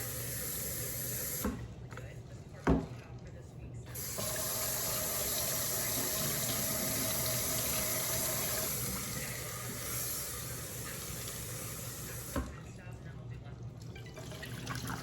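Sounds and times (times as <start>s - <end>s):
tap water running into sink: 0.0s - 1.6s, 4.0s - 12.6s, 14.0s - 15.0s.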